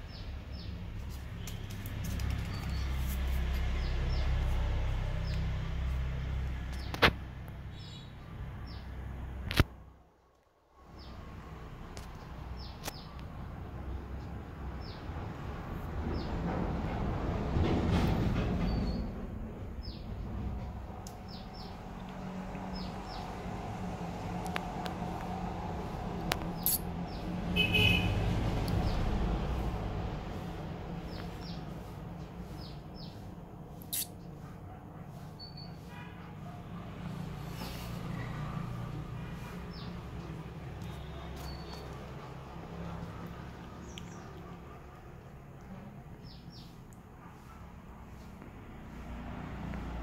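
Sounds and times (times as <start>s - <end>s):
small birds chirping: 0.0s - 9.0s, 11.9s - 15.1s, 21.0s - 23.5s, 25.8s - 29.7s, 30.3s - 34.5s, 35.1s - 38.6s, 39.3s - 48.3s
small bird chirping: 7.7s - 8.9s, 26.6s - 28.0s, 31.0s - 34.2s, 40.8s - 42.0s.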